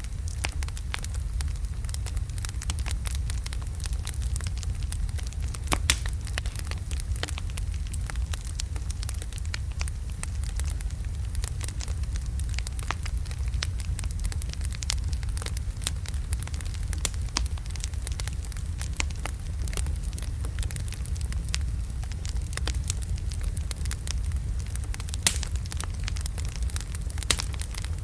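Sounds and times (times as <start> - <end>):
low rumble of flames: 0.0 - 28.0
wood fire crackling: 0.0 - 28.0
sharp pops and snaps: 5.6 - 6.6, 24.2 - 27.9.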